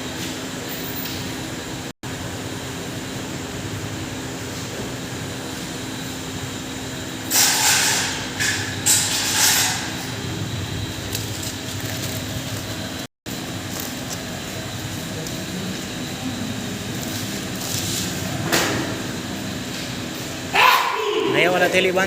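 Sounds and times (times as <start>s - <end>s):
hammer mill humming: 8.0s - 22.0s.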